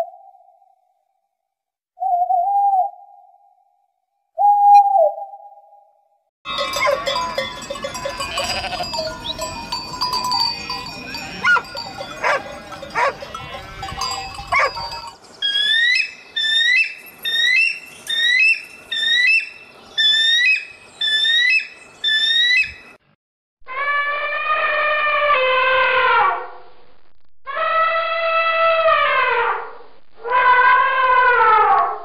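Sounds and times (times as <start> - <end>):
sheep and goats bleating: 6.5 - 15.1
livestock bells ringing: 6.5 - 15.5
kestrel calling: 14.3 - 22.9.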